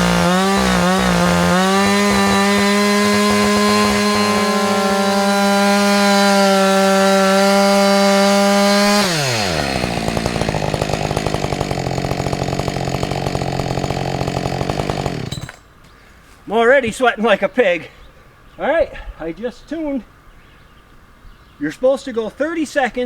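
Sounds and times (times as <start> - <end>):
chainsaw revving and idling: 0.0 - 15.6.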